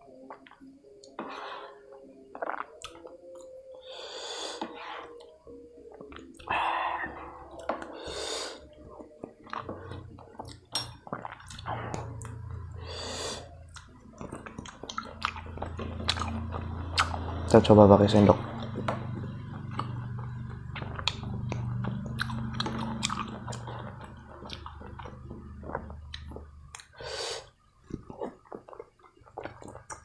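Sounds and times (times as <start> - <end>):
wet mouth noises and slurps: 2.3 - 3.5.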